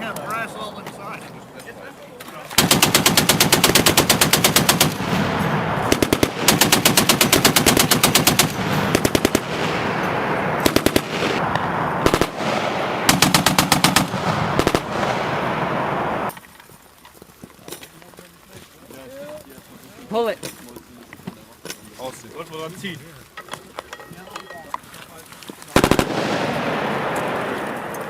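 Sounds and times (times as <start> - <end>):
machine gun firing bursts: 2.6 - 11.4, 12.0 - 15.9, 25.8 - 28.0
steady loud noise: 2.6 - 16.3.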